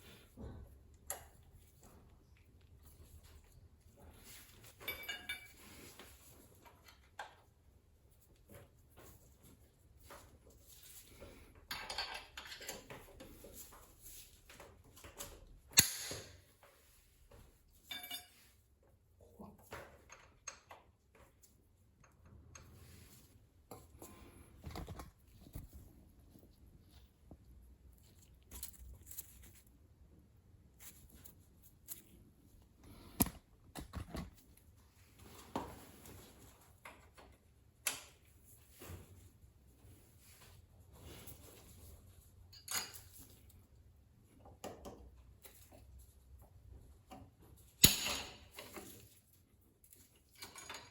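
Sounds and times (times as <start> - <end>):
metal tools clinking and rattling: 4.1 - 7.2, 11.0 - 13.7, 17.7 - 18.6, 42.5 - 43.5, 49.9 - 50.9.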